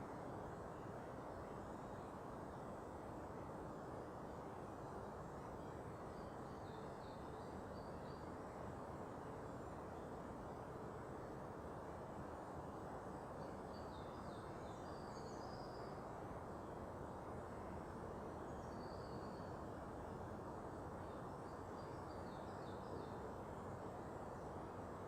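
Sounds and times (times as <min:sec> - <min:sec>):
songbird chirps and trills: 0:12.3 - 0:25.0.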